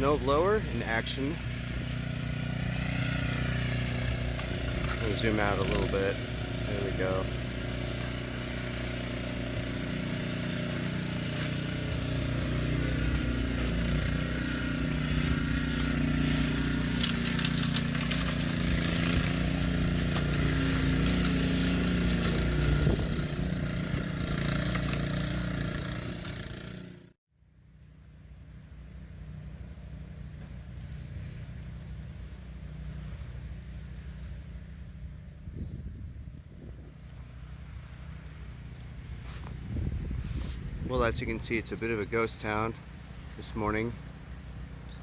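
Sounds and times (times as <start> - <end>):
snow blower engine running: 0.0 - 27.1, 28.1 - 35.6, 36.5 - 45.0.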